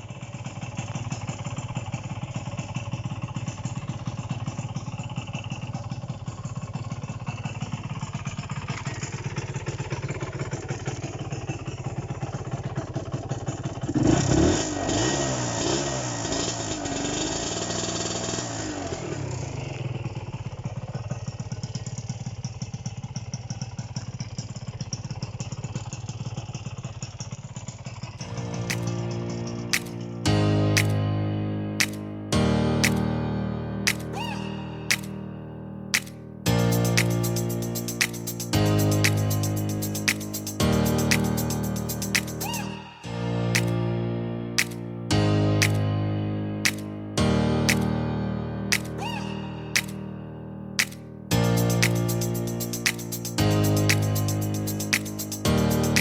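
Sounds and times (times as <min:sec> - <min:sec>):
motorcycle engine idling and revving: 0:00.0 - 0:28.2.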